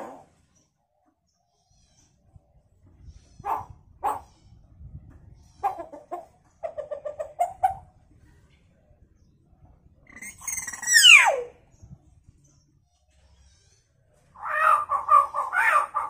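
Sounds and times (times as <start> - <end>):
bird mimicking chicken calls: 10.1 - 11.5, 14.4 - 16.0.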